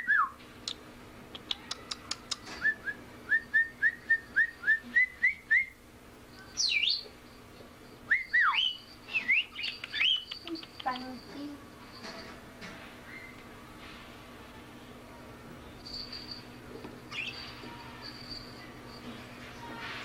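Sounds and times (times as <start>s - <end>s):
sharp clicks: 0.6s - 2.5s
bird chirps and whistles: 6.4s - 7.1s, 8.1s - 10.6s.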